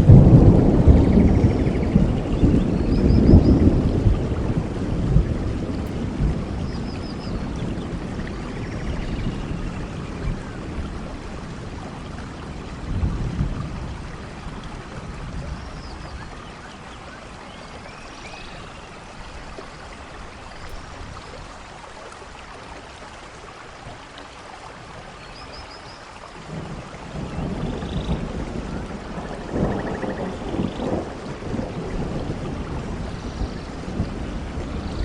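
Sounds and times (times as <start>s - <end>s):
steady rainfall: 0.0s - 35.0s.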